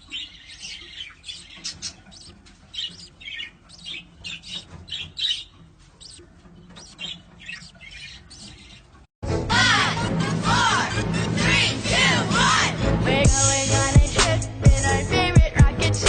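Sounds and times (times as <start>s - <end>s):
bird chirping and squawking: 0.0s - 9.1s
loud music: 9.2s - 16.0s.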